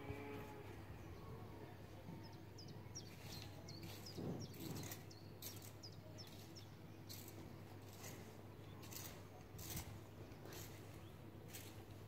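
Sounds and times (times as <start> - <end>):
small bird chirping: 2.2 - 9.1
rake scratching leaves: 7.1 - 12.0.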